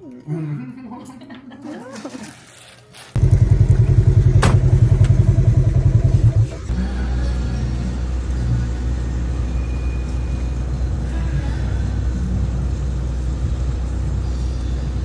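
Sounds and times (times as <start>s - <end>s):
low engine rumble: 3.2s - 15.0s.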